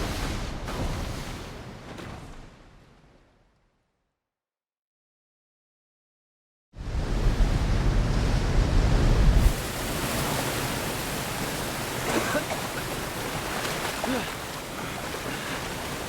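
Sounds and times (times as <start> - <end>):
rushing river and waterfalls: 7.0 - 16.0.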